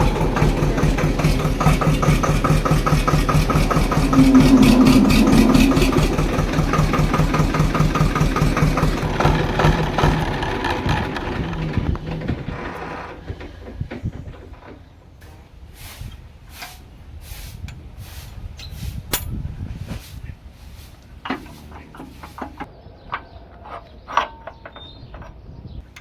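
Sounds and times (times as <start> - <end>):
tractor diesel engine knocking: 0.0 - 15.3, 21.0 - 22.7.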